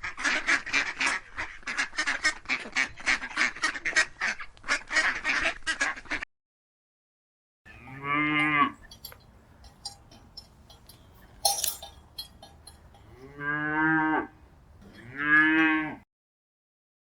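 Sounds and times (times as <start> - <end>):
cow mooing: 7.7 - 10.5, 11.4 - 16.0
short clinks and knocks: 8.4 - 13.5, 14.4 - 15.2.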